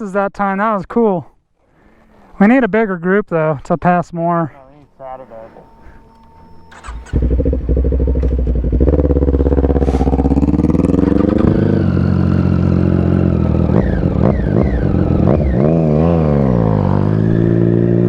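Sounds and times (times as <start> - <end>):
motorcycle engine revving: 6.7 - 18.0.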